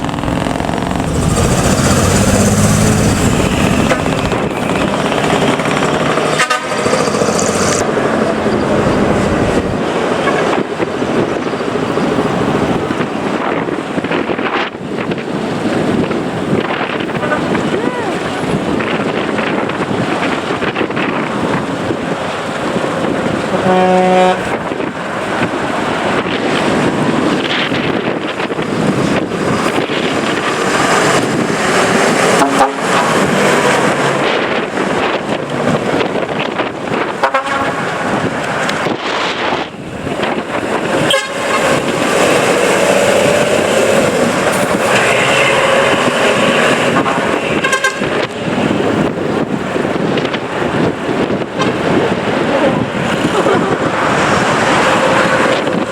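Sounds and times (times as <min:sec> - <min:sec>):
trucks running: 0:00.0 - 0:55.9
wind buffeting microphone: 0:00.0 - 0:55.9
truck horn toot: 0:06.2 - 0:07.6, 0:23.5 - 0:24.6, 0:32.4 - 0:33.0, 0:37.2 - 0:38.1, 0:41.1 - 0:41.6, 0:47.5 - 0:48.3.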